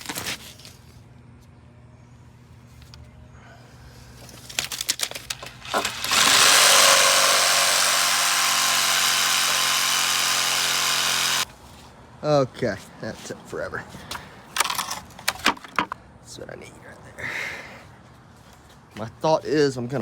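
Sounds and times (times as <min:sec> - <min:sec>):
power tool running: 0:05.6 - 0:11.4.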